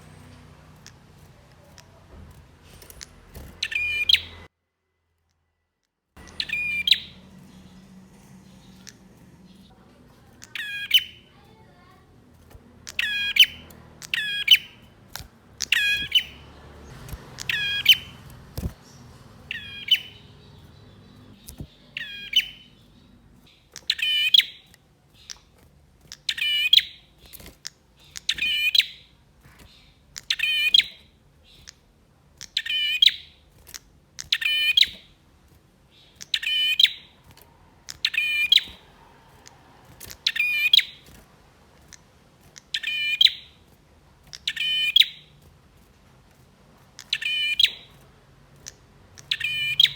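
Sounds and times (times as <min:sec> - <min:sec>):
prinia calling high-pitched phrases: 0:08.4 - 0:14.9, 0:19.5 - 0:22.8.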